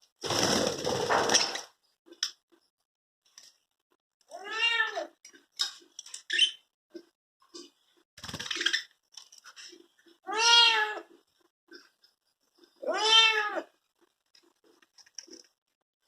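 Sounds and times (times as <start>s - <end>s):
cat meowing: 4.3s - 5.1s, 10.3s - 11.1s, 12.8s - 13.7s.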